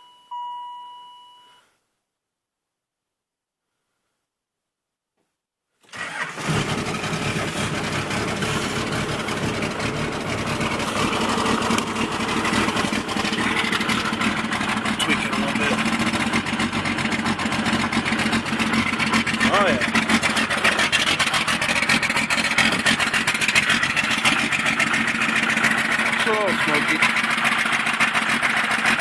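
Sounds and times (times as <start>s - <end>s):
diesel engine fast idle clatter: 5.9s - 29.0s.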